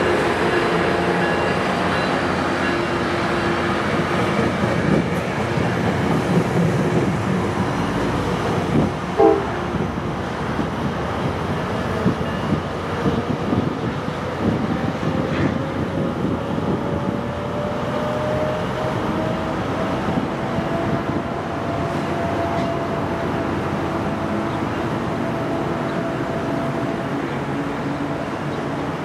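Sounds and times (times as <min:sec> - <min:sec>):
diesel train accelerating: 0:00.0 - 0:29.0.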